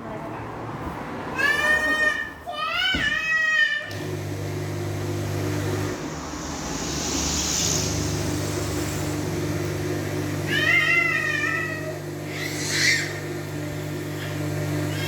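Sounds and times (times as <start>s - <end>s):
steady low hum: 5.6s - 11.9s.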